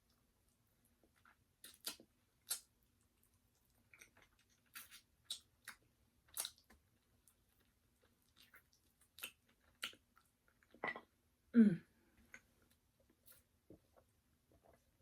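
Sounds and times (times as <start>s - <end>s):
chewing with crisp crunches: 0.9s - 10.8s.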